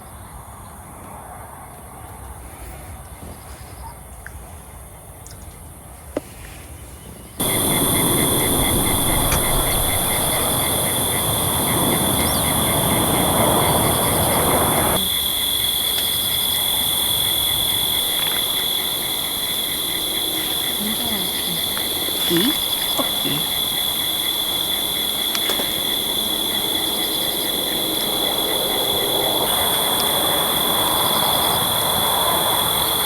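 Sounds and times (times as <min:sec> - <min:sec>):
crickets chirping: 0:00.0 - 0:06.2, 0:06.8 - 0:33.0
rushing breeze: 0:06.8 - 0:33.0.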